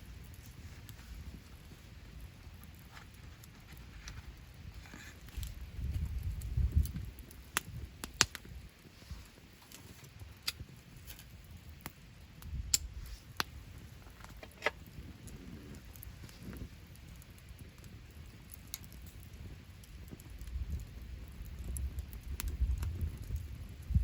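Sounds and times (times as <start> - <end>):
campfire crackling: 0.0 - 24.0
sharp pops from burning wood: 0.0 - 24.0.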